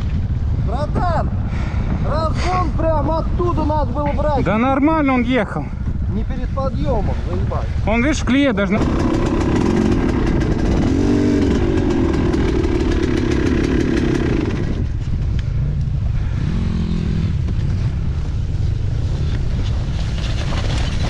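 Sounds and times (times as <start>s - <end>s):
motorcycle engine revving: 8.6s - 21.0s.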